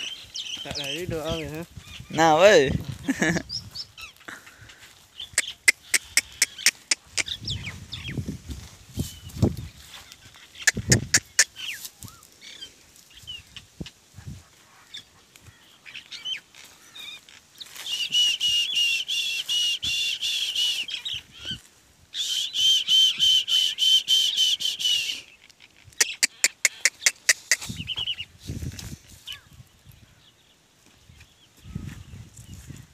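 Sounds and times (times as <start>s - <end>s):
sharp clicks: 5.4s - 7.3s, 25.4s - 27.7s.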